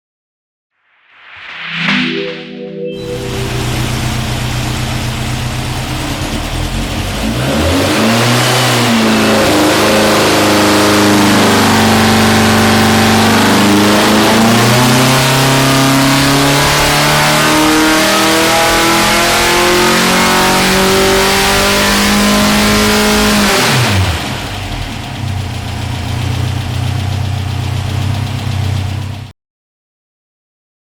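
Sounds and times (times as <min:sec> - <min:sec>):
car engine revving on dyno: 0:03.2 - 0:25.3.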